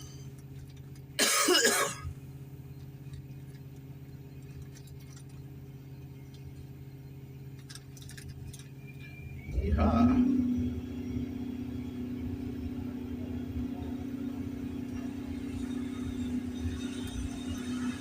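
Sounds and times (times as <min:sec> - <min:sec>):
excavator diesel engine humming: 0:00.0 - 0:18.0
loud engine cough: 0:01.2 - 0:02.1.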